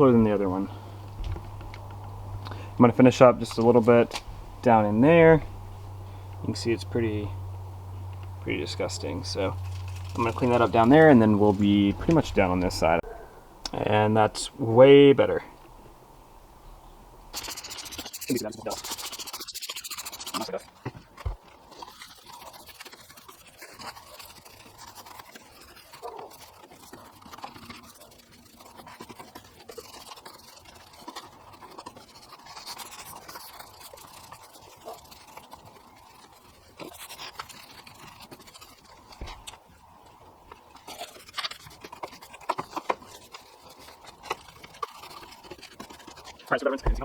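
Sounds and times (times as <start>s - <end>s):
brush scrubbing: 2.5s - 7.4s, 8.5s - 13.0s, 17.3s - 47.0s
sharp knocks: 46.8s - 47.0s.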